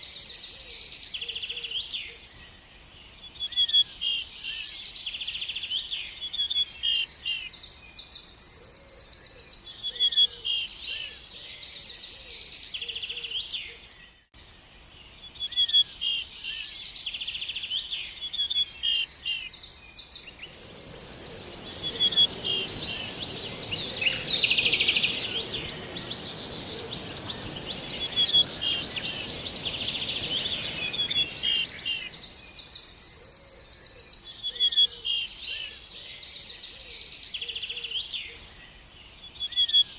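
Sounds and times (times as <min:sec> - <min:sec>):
songbirds chirping and twittering: 0:00.0 - 0:39.9
low rumbling background noise: 0:20.2 - 0:32.6
steady high hiss: 0:20.2 - 0:32.9.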